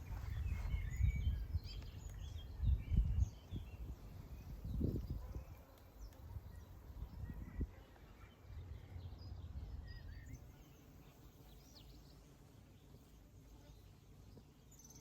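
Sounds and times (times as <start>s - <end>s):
birds chirping and whistling: 0.2s - 3.6s.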